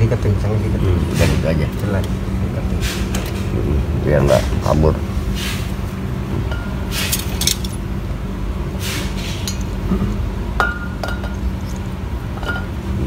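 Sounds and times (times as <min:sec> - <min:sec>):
steady low hum: 0:00.0 - 0:13.0
metal parts clinking: 0:07.0 - 0:07.8.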